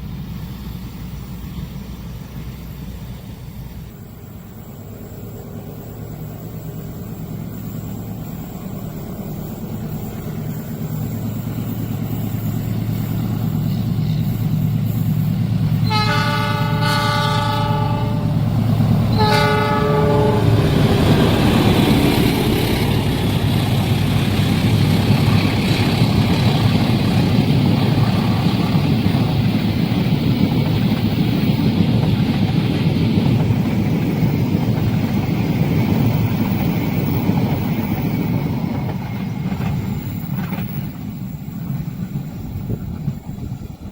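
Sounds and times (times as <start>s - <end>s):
locomotive engine hum: 0.0s - 43.9s
train wheels on rails: 0.0s - 43.9s
train horn blasts: 15.8s - 21.2s.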